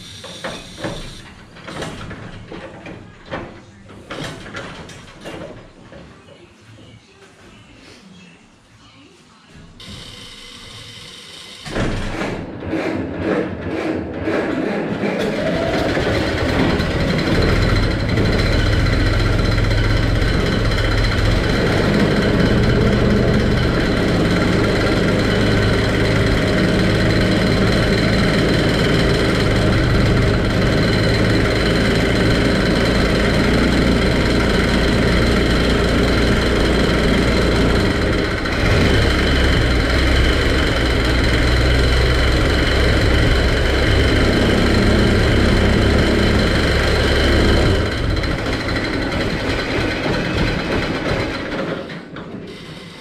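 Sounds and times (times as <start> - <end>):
old car engine idling: 15.3 - 51.8.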